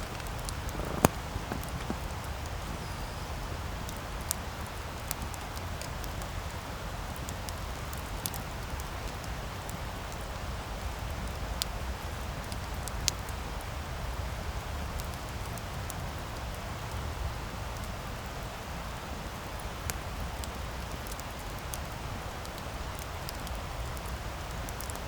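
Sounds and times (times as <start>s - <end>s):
rush of flames: 0.0s - 5.4s
wood crackling and popping: 0.0s - 6.3s.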